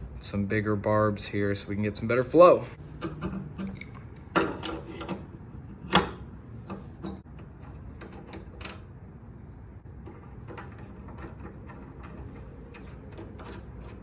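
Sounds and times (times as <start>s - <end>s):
metal hose fittings clicking: 3.0s - 8.8s.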